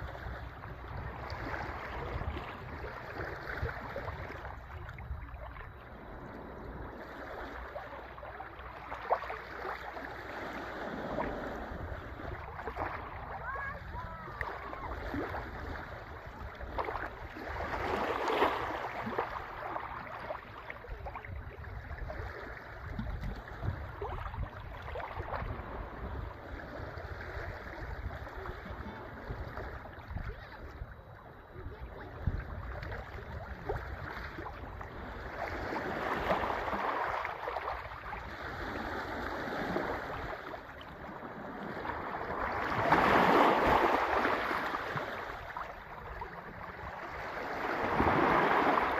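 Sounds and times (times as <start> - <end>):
wind buffeting microphone: 0.0 - 7.2, 20.9 - 36.7
sea waves washing: 0.0 - 21.5, 33.0 - 48.9.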